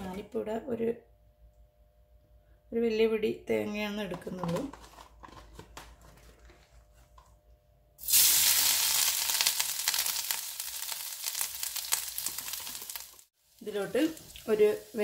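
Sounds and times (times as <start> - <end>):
coconut sizzling in hot oil: 8.0 - 15.0.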